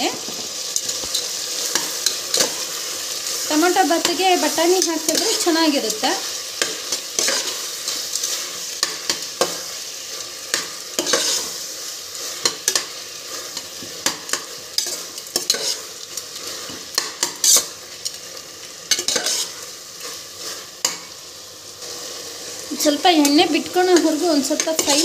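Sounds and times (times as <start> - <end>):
vegetables sizzling in oil: 0.0 - 25.0
spatula scraping a pot: 6.6 - 11.6, 12.2 - 17.7, 18.9 - 21.1, 24.0 - 25.0.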